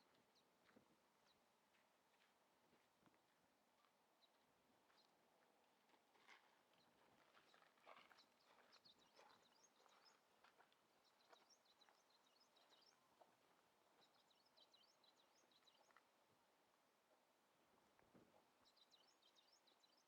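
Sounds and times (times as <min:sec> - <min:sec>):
small birds chirping: 0:06.8 - 0:13.3, 0:13.9 - 0:16.0, 0:18.5 - 0:20.0.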